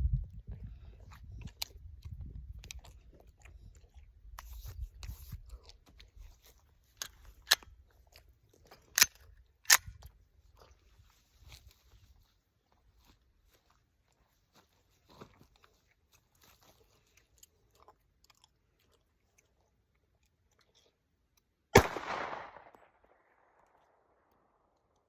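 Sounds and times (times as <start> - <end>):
pistol shot: 21.8 - 23.8.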